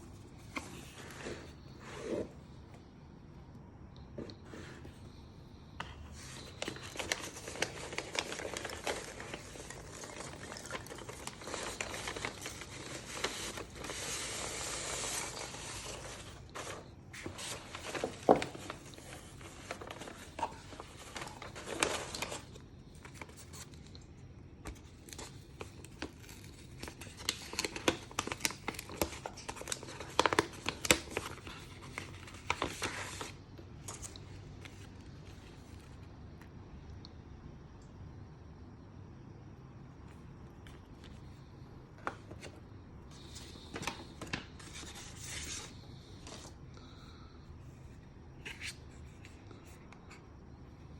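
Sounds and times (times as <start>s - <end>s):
paper and plastic crinkling: 5.8s - 24.0s, 24.6s - 36.1s, 42.0s - 47.0s.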